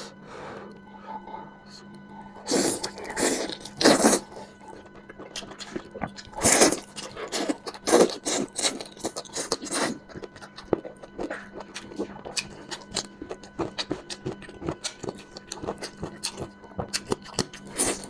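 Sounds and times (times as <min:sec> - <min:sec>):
meat tearing and chewing: 0:04.8 - 0:18.0.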